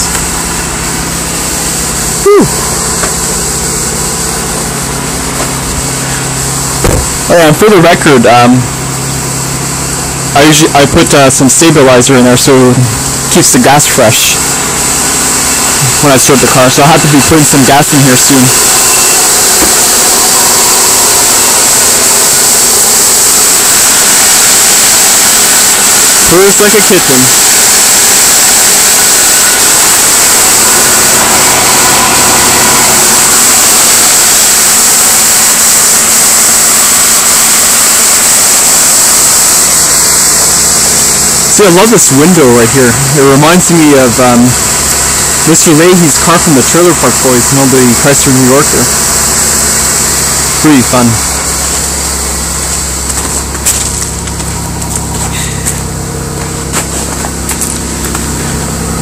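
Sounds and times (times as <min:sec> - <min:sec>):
car engine idling: 0:00.0 - 0:11.2, 0:48.7 - 0:59.0.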